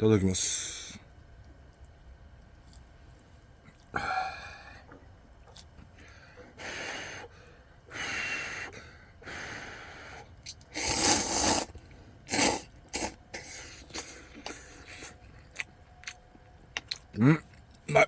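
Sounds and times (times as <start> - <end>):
noodles being slurped: 10.5 - 15.2.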